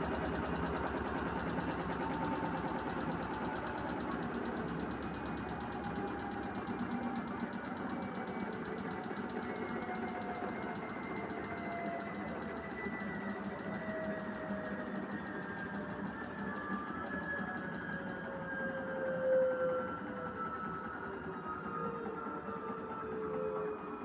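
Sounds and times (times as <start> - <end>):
washing machine spinning: 0.0 - 18.2.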